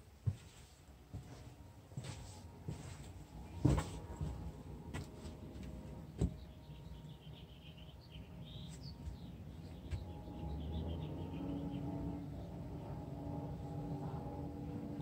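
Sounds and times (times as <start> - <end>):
small birds chirping: 6.0 - 12.6.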